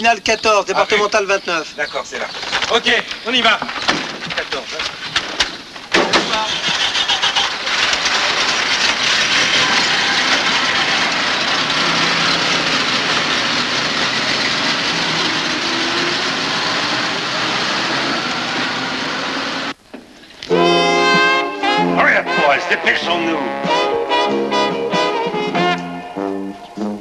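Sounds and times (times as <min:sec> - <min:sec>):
car engines pulling away: 0:05.3 - 0:19.8.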